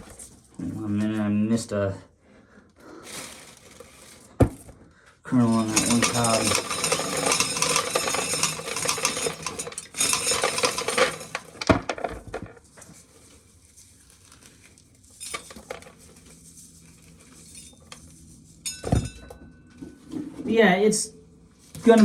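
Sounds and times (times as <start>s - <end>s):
corn kernels clattering into pail: 5.3s - 12.8s.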